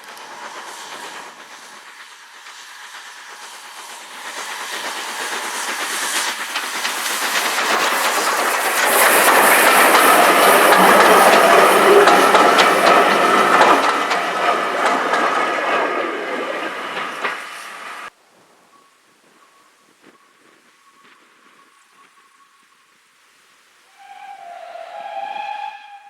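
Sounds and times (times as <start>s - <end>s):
wheels clicking over rails: 0.0s - 18.1s
train passing close by: 0.0s - 22.5s, 23.9s - 26.0s.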